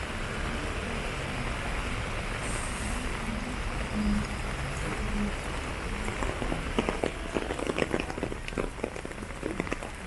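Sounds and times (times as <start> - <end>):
steady rain falling: 0.0 - 10.0
raindrops tapping close by: 3.8 - 10.0.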